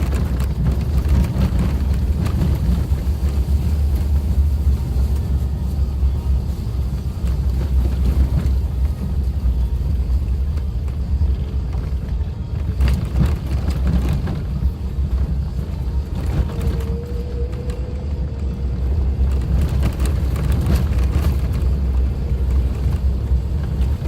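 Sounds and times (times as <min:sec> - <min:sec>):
knocks and rattles: 0:00.0 - 0:04.4
car engine and road rumble: 0:00.0 - 0:24.0.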